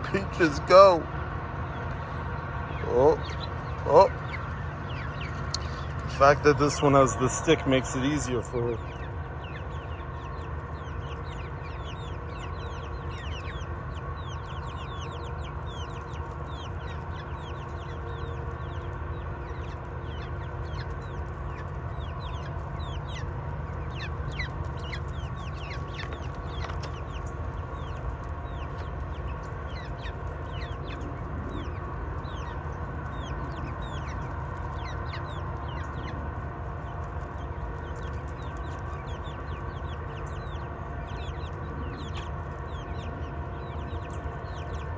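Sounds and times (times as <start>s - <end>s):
hens clucking: 0.0s - 44.9s
low background rumble: 0.0s - 44.9s.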